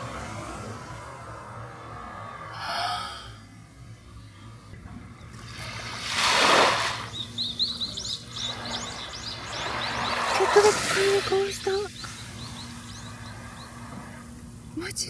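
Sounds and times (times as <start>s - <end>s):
bird chirping: 7.0s - 15.0s.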